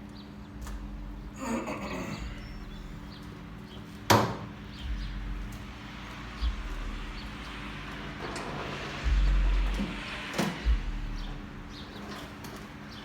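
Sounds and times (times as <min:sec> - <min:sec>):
low rumble: 0:02.2 - 0:03.6, 0:04.6 - 0:12.1.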